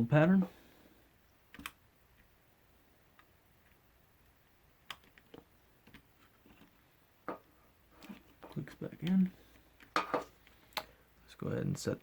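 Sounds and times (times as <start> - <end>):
faint clicks of small parts: 8.0 - 11.0.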